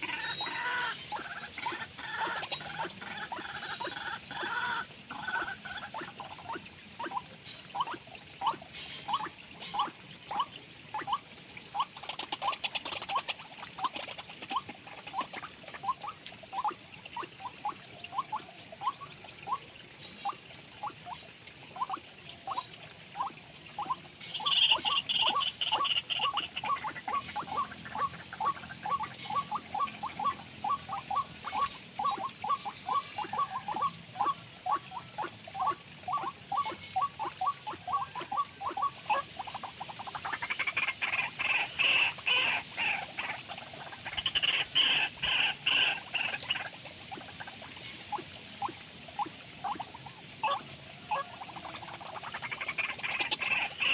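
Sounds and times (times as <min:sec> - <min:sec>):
bird high rapid trill: 0:19.0 - 0:19.8.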